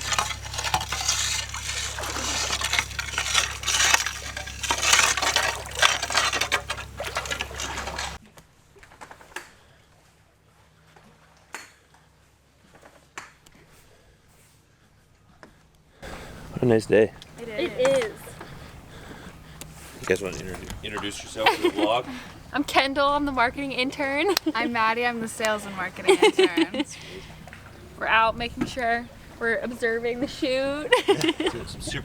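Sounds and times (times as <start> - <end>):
water splashing in shallows: 0.0 - 8.2.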